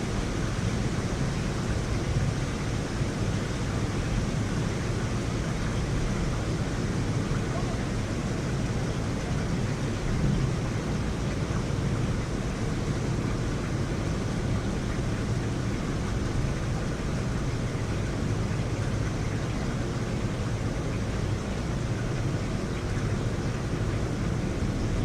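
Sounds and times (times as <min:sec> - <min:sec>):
heavy rain: 0:00.0 - 0:25.0
deep thunder rumble: 0:05.4 - 0:14.9.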